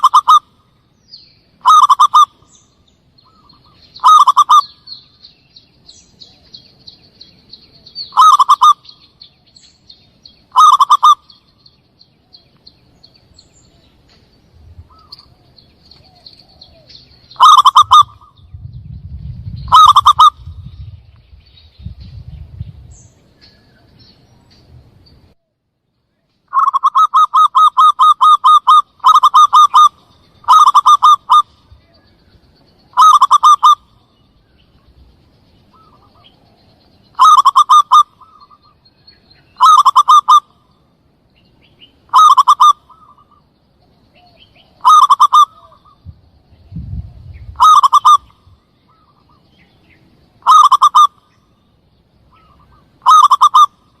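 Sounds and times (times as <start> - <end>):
dove cooing: 0.0 - 0.5, 1.6 - 2.4, 3.3 - 4.9, 8.1 - 8.9, 10.5 - 11.3, 14.9 - 18.5, 19.5 - 20.8, 26.5 - 32.1, 32.9 - 33.9, 37.1 - 38.8, 39.6 - 40.5, 42.1 - 43.4, 44.1 - 46.1, 47.1 - 49.4, 50.4 - 51.2, 52.3 - 53.8
faint small bird chirps: 0.0 - 54.0.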